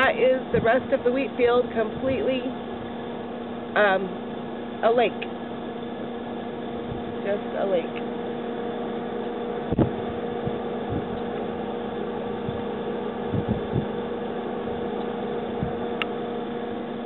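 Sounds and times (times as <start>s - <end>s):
engine hum: 0.0s - 17.0s
low thumps: 9.6s - 14.1s, 15.4s - 16.1s.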